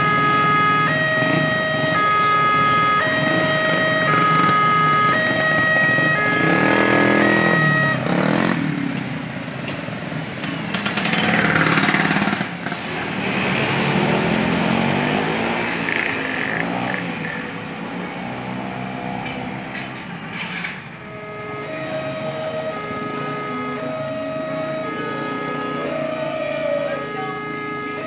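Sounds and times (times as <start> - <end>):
level crossing warning alarm: 0.0 - 8.6, 21.0 - 28.0.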